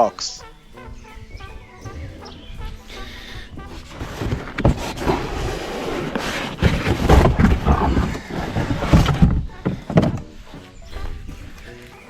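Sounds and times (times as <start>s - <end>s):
cardboard and plastic rustling: 2.9s - 10.4s.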